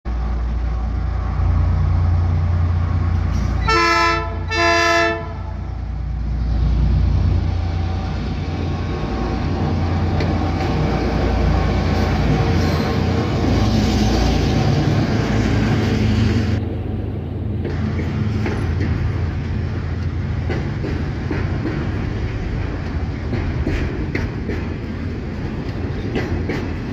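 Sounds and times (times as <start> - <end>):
diesel locomotives rumbling: 0.1 - 26.9
locomotive horn blasts: 3.6 - 5.6.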